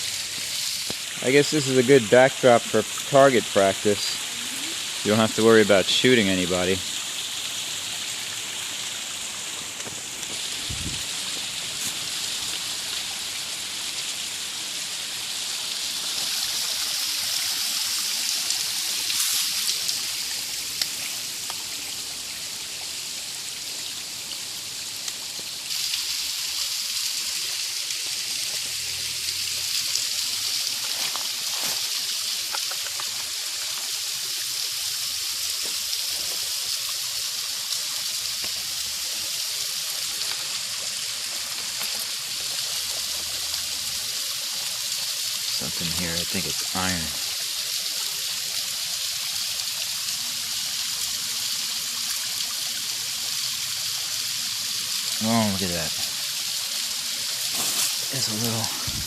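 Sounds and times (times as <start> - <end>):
water rushing over rock: 25.7 - 49.7, 54.8 - 59.0.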